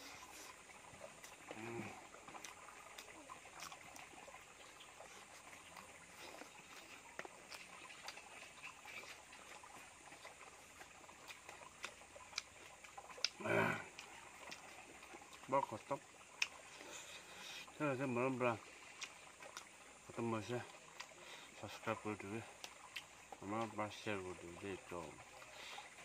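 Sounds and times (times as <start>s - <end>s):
faint hiss: 0.0s - 0.6s, 16.7s - 18.6s
person chewing and lip-smacking: 1.2s - 15.5s, 16.3s - 16.9s, 18.9s - 19.7s
short vocal sound: 1.5s - 2.0s, 13.4s - 13.9s.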